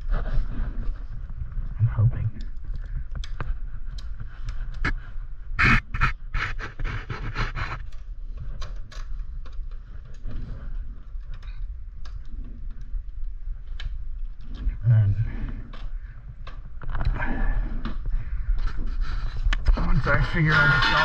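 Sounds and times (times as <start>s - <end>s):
drivetrain scraping: 19.4s - 21.0s.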